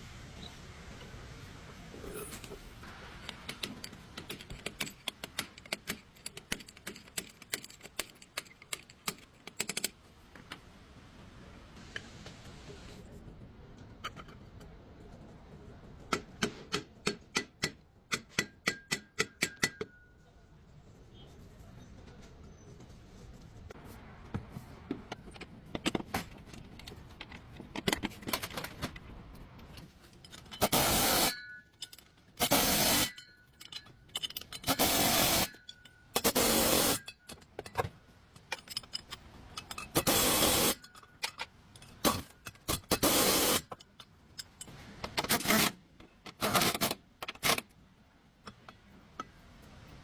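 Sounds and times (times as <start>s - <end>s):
small clinks and knocks: 25.1s - 45.2s
hand tools scraping: 29.8s - 47.7s.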